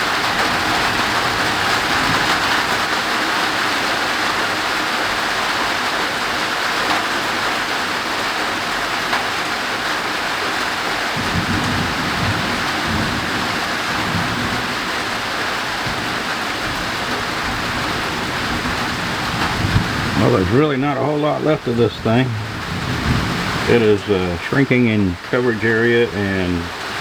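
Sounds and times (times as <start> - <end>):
heavy rain on a roof: 0.0 - 27.0
low thunder rumble: 11.2 - 27.0.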